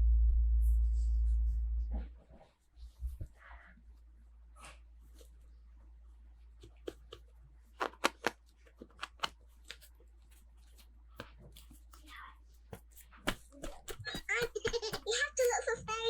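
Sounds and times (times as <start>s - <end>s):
plastic toys clicking and tapping: 6.6s - 10.0s, 11.2s - 16.0s.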